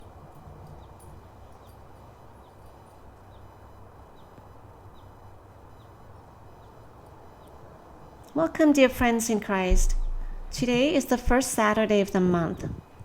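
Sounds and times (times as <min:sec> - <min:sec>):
low hum: 0:09.7 - 0:11.4.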